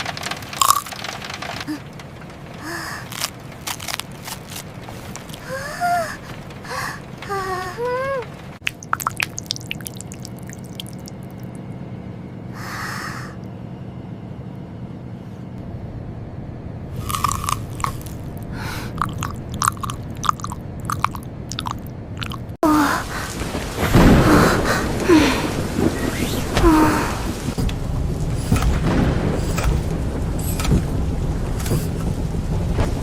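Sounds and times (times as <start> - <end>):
chewing crunchy food: 3.0 - 5.4, 17.0 - 22.6.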